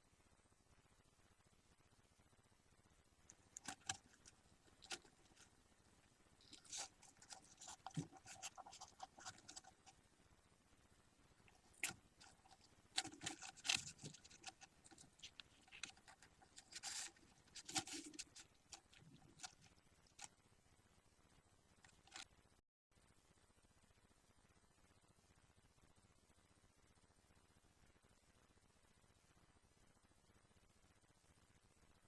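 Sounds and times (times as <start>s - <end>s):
budgie chicks scratching and rustling: 3.3s - 5.6s, 6.4s - 10.0s, 11.4s - 20.3s, 21.9s - 22.3s.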